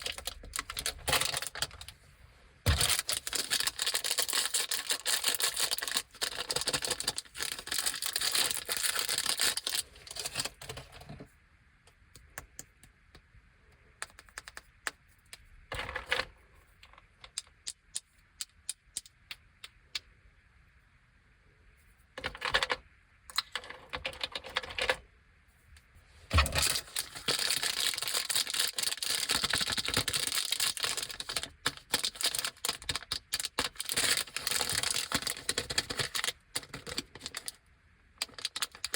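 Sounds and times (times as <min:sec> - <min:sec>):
plastic wrappers crinkling: 0:00.0 - 0:02.0, 0:02.7 - 0:11.1, 0:26.4 - 0:37.6, 0:38.2 - 0:38.9.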